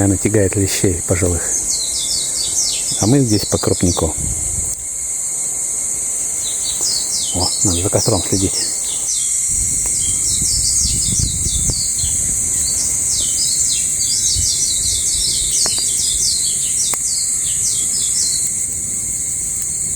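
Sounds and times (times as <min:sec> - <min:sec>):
songbird chirping: 0:00.0 - 0:04.2, 0:06.1 - 0:18.5
high-pitched hiss: 0:00.0 - 0:19.9
sharp clicks: 0:15.5 - 0:16.0.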